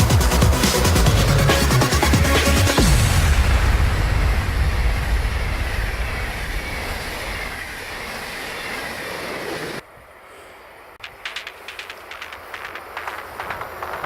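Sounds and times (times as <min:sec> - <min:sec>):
train rail rumble: 0:11.0 - 0:14.0.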